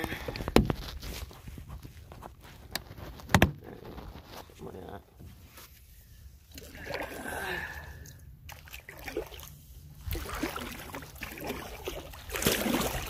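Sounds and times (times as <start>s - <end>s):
paddle splashing water: 8.5s - 13.0s.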